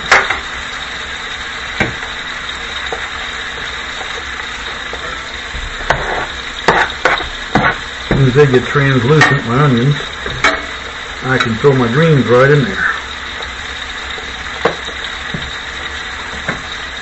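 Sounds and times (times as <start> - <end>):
food sizzling in a skillet: 0.0 - 17.0
utensil knocking against pan: 6.7 - 8.3.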